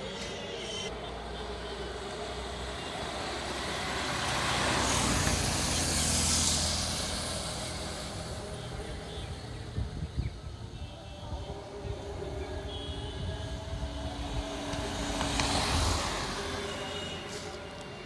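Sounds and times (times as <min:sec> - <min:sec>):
vehicle passing by: 0:02.4 - 0:09.6, 0:13.6 - 0:17.9.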